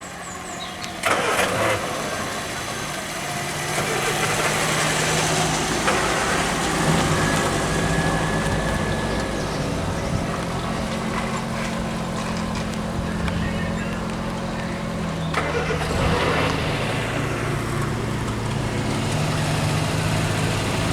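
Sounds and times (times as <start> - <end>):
car engine starting and running: 0.0 - 20.9.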